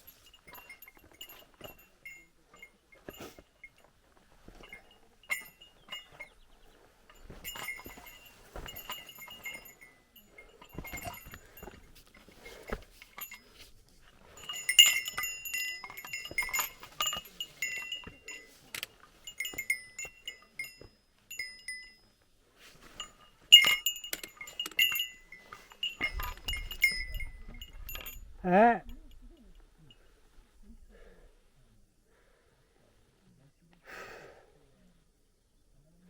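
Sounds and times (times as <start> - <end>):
small metal bell jingling: 0.0 - 31.0.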